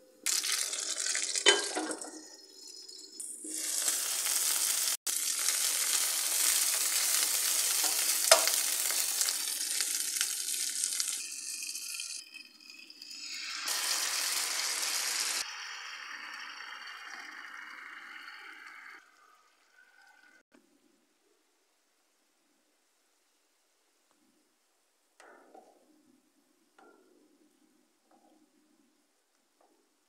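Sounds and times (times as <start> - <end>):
peppers sizzling in oil: 0.2 - 18.3.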